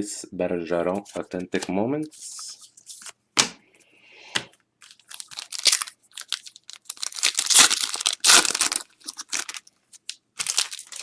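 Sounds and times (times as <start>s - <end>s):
card pack wrappers crinkling: 4.8s - 11.0s.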